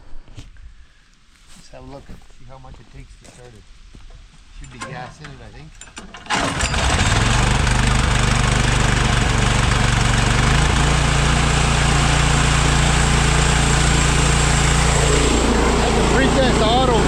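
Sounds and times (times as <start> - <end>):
small gasoline engine running: 6.0 - 17.0.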